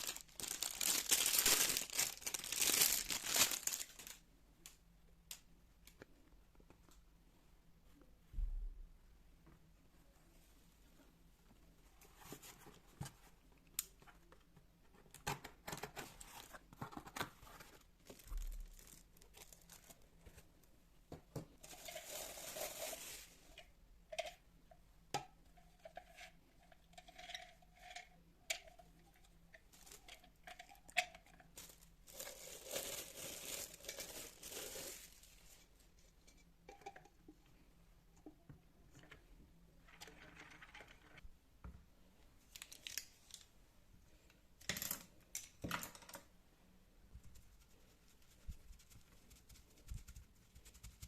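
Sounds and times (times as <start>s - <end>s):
rustling: 0.0s - 4.2s, 31.5s - 36.1s.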